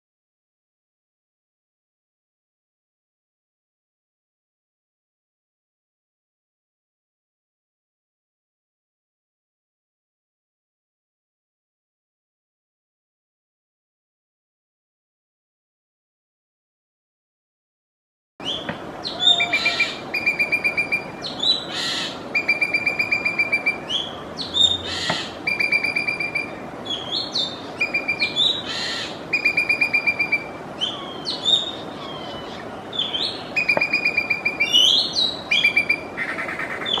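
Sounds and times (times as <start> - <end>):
magpie calling: 18.5 - 37.0.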